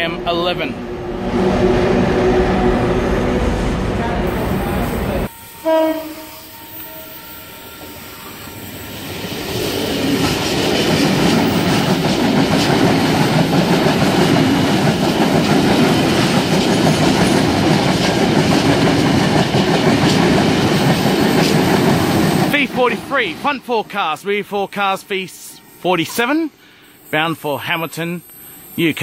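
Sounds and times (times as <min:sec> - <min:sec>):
passenger train rumbling past: 0:00.0 - 0:29.0
short pitched tone: 0:04.3 - 0:08.8
high wheel squeal: 0:27.1 - 0:29.0.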